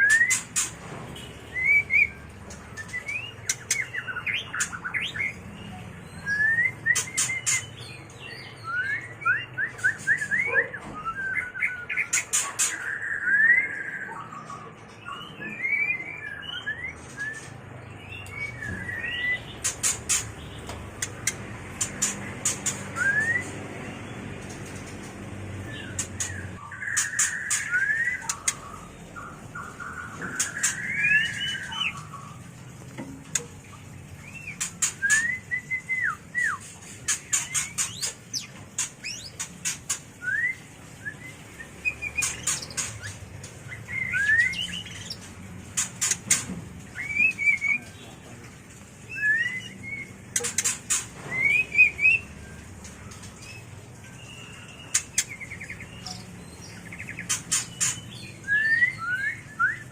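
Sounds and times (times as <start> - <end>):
bird whistled notes: 22.7 - 23.6, 34.4 - 36.7
bird rapid clicks: 50.3 - 51.1.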